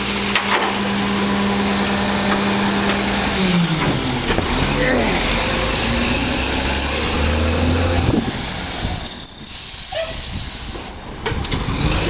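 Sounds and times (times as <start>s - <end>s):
truck engine low drone: 0.0s - 9.6s
high-pitched squeal: 4.7s - 11.2s.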